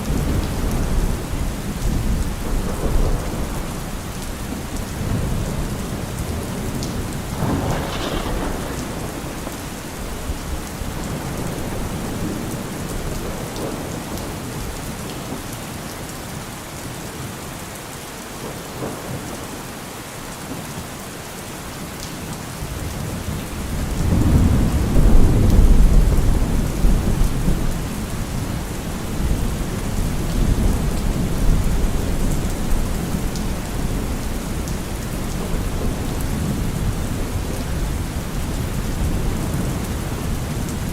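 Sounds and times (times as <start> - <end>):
deep thunder rumble: 0.0 - 14.7, 23.6 - 40.9
steady rain falling: 0.0 - 40.9
sharp thunder peal: 7.0 - 12.4.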